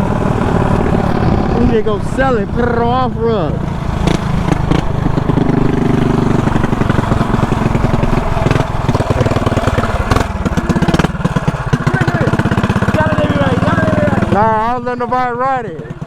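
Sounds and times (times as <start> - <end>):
mini bike engine revving: 0.0 - 16.0
sharp knocks: 4.0 - 13.0.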